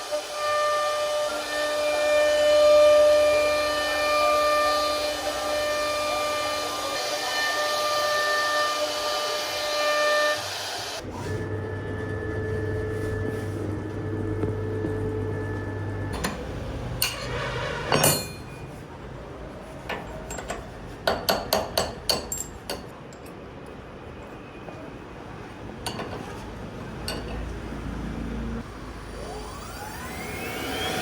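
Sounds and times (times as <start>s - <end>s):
router spindle whine: 0.0s - 16.6s, 28.0s - 31.0s
metallic clinks and knocks: 17.0s - 18.7s, 19.9s - 23.4s, 25.8s - 26.4s, 27.0s - 27.6s.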